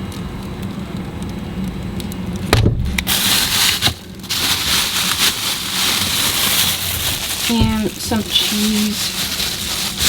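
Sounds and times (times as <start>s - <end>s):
food packaging crackling: 2.9s - 10.0s.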